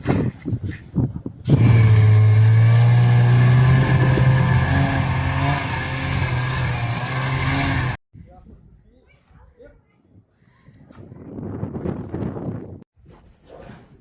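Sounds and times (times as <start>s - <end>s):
vehicle engine running: 1.6s - 8.0s.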